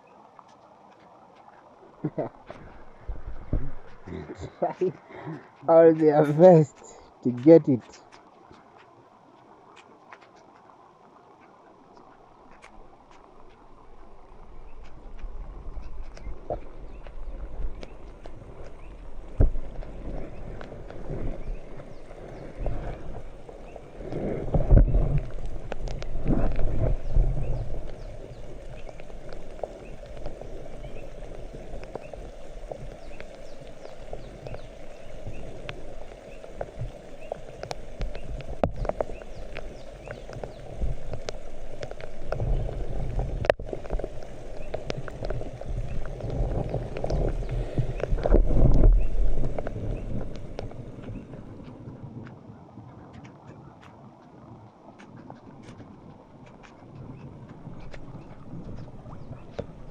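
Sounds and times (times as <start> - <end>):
rain falling: 0.0 - 52.2
low rumbling thumps: 2.7 - 4.5.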